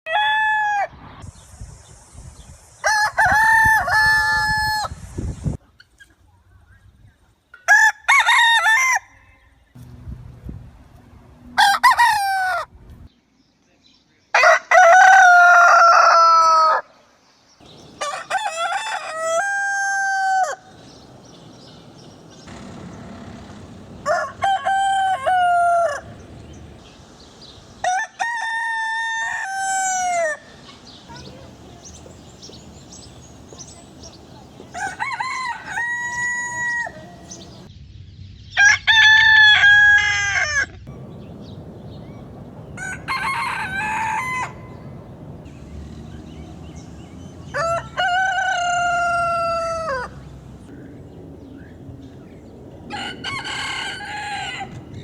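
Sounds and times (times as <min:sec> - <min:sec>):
rooster crowing: 0:02.9 - 0:05.0, 0:11.6 - 0:12.7, 0:14.4 - 0:16.9, 0:17.6 - 0:37.7, 0:38.7 - 0:50.4, 0:52.9 - 0:55.0.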